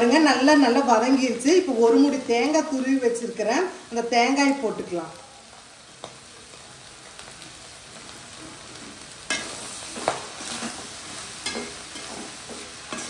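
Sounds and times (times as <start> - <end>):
food sizzling in a pan: 0.0 - 13.0
metal spatula scraping pan: 9.3 - 13.0.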